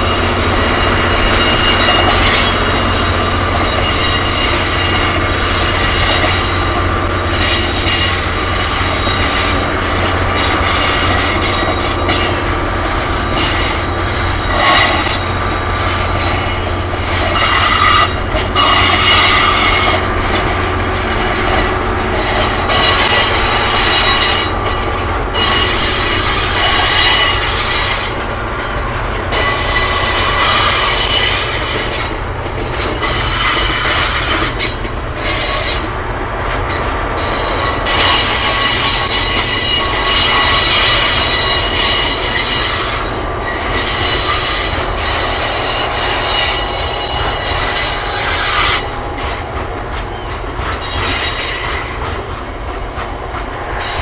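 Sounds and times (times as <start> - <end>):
low diesel locomotive drone: 0.0 - 54.0
train wheels squealing: 0.0 - 54.0
wheels clicking over rail joints: 0.0 - 54.0.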